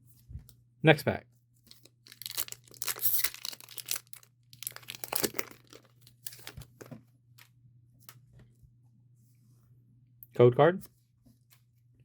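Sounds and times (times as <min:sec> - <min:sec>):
foil wrapper tearing and crinkling: 0:01.8 - 0:06.5.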